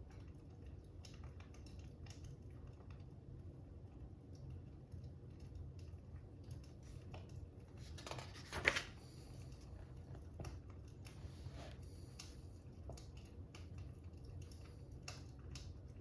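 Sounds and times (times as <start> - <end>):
faint fire crackling: 0.0 - 16.0.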